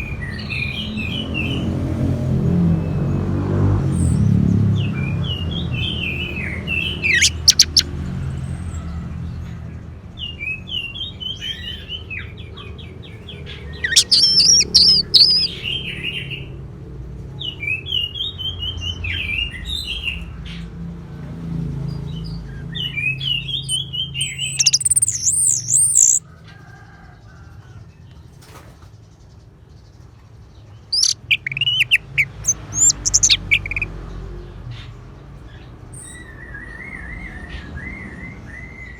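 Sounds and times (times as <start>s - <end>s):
thrush singing: 6.9s - 7.9s, 13.8s - 15.6s, 23.7s - 26.2s, 30.9s - 33.9s.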